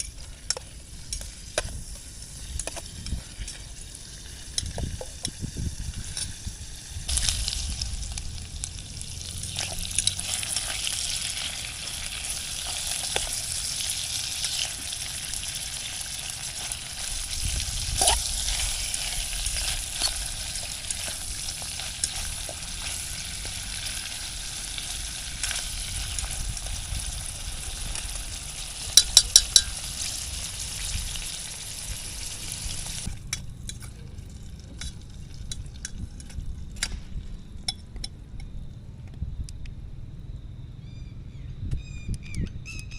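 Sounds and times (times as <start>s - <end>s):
food sizzling in a pan: 0.9s - 33.1s
stirring and scraping in a pan: 9.2s - 24.6s.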